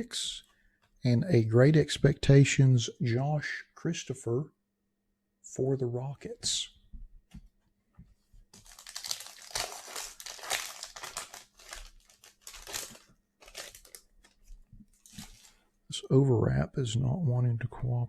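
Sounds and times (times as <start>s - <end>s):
plastic wrap crinkling and tearing: 8.5s - 15.6s.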